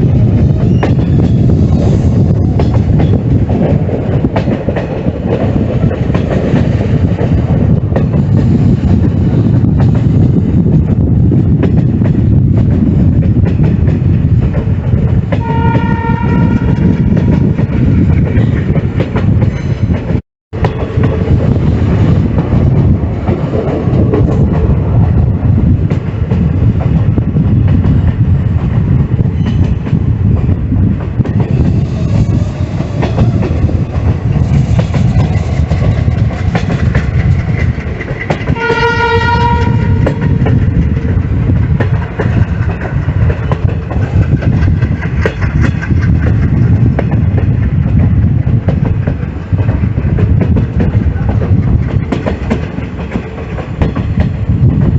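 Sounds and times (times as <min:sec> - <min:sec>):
train rumbling on rails: 0:00.0 - 0:54.9
wheels clacking on track: 0:00.0 - 0:54.9
train horn: 0:15.4 - 0:17.1, 0:38.5 - 0:40.4.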